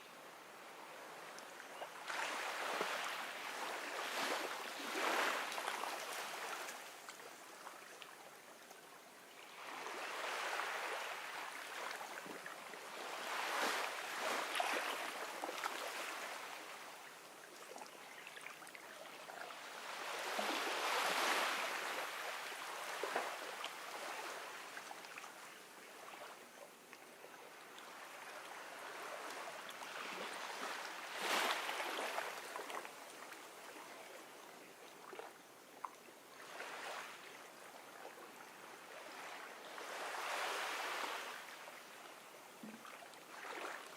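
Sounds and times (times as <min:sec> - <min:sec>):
ocean waves washing onto beach: 0:02.0 - 0:07.1, 0:19.5 - 0:25.0.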